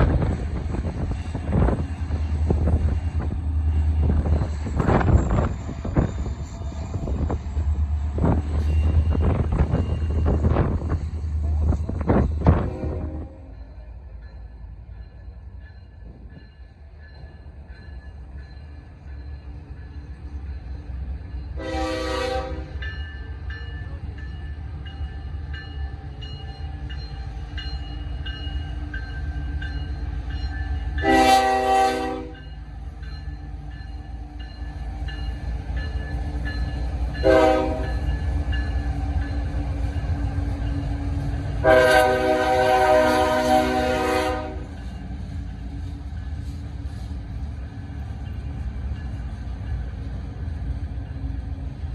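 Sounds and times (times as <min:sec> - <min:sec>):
locomotive air horn blasts: 0:12.5 - 0:13.5, 0:21.6 - 0:22.8, 0:31.0 - 0:32.4, 0:37.2 - 0:37.9, 0:41.6 - 0:44.7.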